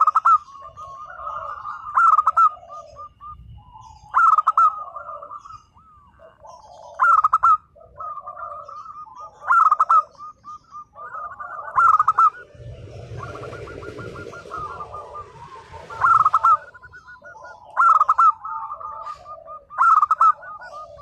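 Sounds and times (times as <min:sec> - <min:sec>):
dove cooing: 0:00.0 - 0:21.0
hiss of noise: 0:11.8 - 0:17.1.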